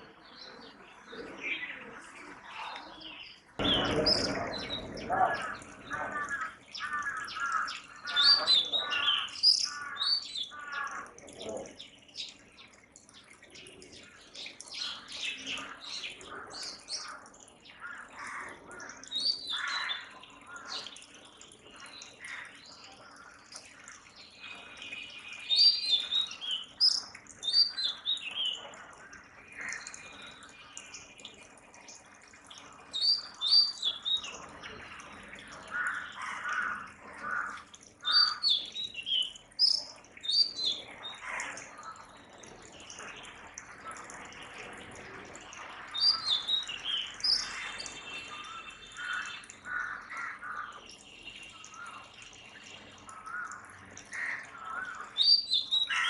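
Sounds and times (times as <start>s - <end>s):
magpie-robin singing: 33.0s - 34.4s, 38.0s - 41.2s, 46.0s - 49.3s, 55.2s - 56.0s.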